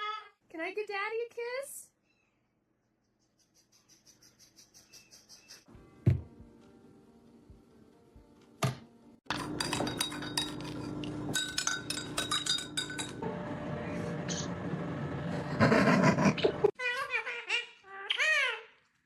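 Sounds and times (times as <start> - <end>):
rapid clinking and tapping: 9.3 - 13.2.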